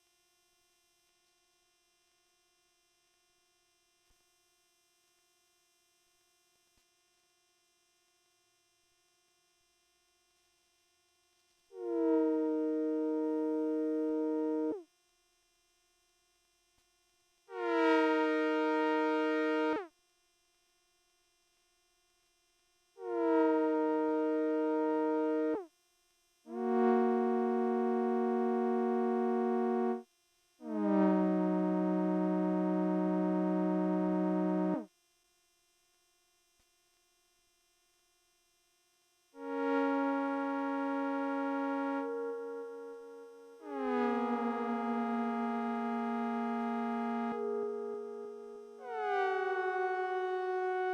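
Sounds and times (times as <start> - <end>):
synthesizer playing a held chord: 11.8 - 14.8, 17.6 - 19.8, 23.1 - 25.6, 26.5 - 30.0, 30.8 - 34.9, 39.4 - 50.9.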